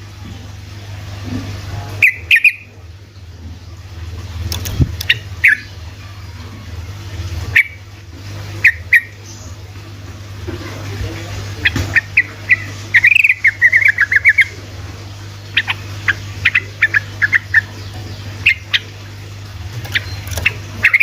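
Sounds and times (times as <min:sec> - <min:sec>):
steady low hum: 0:00.0 - 0:21.0
bird chirping: 0:02.0 - 0:02.7, 0:04.5 - 0:05.7, 0:11.6 - 0:14.6, 0:15.5 - 0:18.9, 0:19.8 - 0:21.0.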